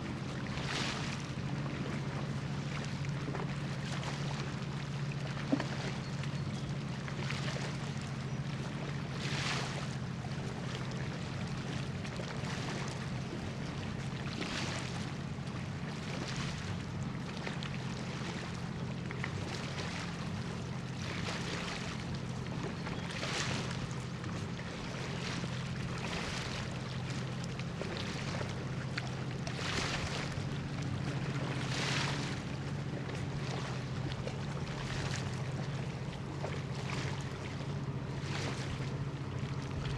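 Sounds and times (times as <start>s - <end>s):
small waves washing: 0.0s - 39.9s.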